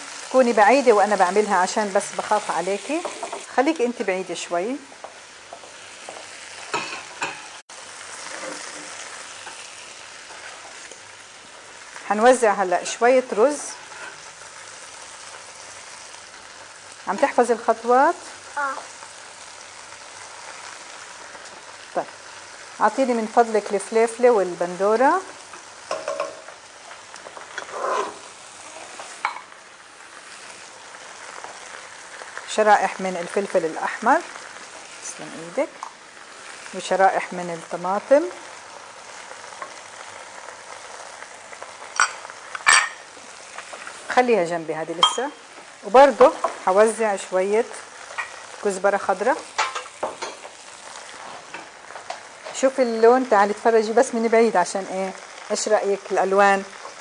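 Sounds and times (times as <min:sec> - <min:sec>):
food sizzling in hot oil: 0:00.0 - 0:57.0
clinks and knocks on pot: 0:25.9 - 0:26.4.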